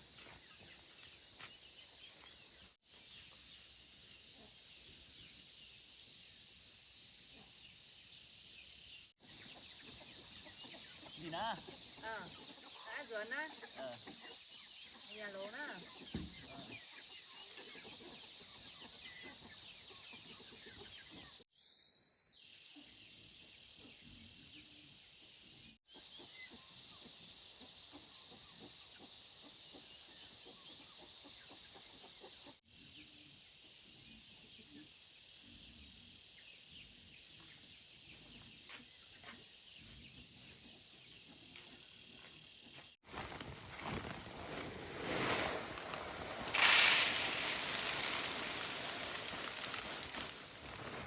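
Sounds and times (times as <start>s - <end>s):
chickens clucking quietly: 9.2s - 15.2s, 25.9s - 36.0s
high-pitched insect drone: 45.2s - 51.0s.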